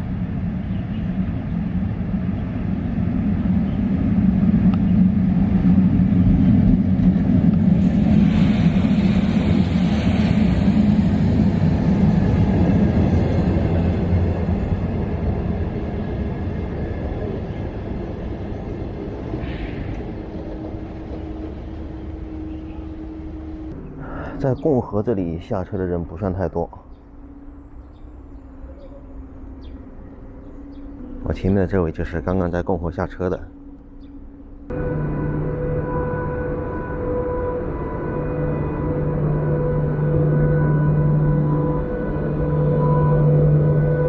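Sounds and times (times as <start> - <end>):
train wheels rumbling on rails: 0.0 - 23.8.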